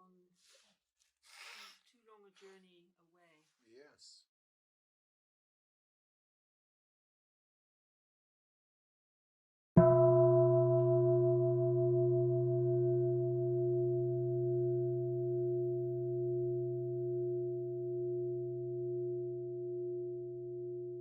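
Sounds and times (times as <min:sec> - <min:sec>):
meditation bell ringing: 0:09.8 - 0:21.0.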